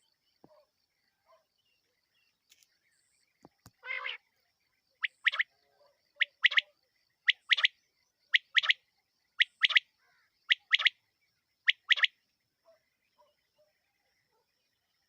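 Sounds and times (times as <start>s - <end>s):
quail calling: 3.8s - 4.2s, 5.0s - 5.5s, 6.2s - 6.7s, 7.3s - 7.7s, 8.3s - 8.8s, 9.4s - 9.8s, 10.5s - 11.0s, 11.7s - 12.1s.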